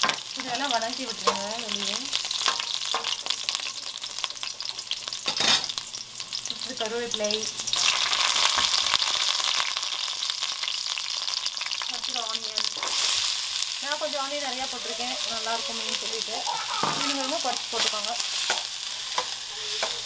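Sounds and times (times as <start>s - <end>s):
seeds crackling in hot oil: 0.0s - 20.0s
spatula stirring: 17.0s - 20.0s.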